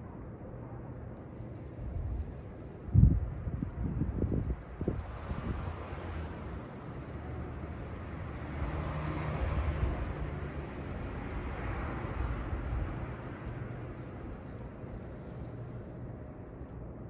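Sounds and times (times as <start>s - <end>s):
passing vehicle rumble: 4.2s - 16.4s.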